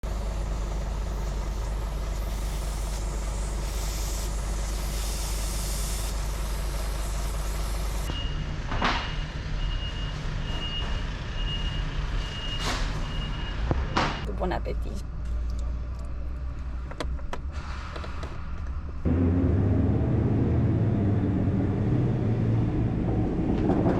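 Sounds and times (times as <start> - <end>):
engine rumble with hiss: 0.0 - 9.0
sharp hiss of air: 1.1 - 8.1
forklift reversing alarm beeping: 8.1 - 14.3
low hum: 18.6 - 23.9.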